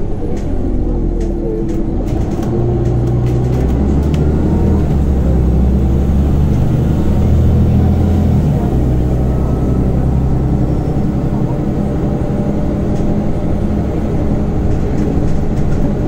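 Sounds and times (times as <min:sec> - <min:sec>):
bus engine drone: 0:00.0 - 0:16.0.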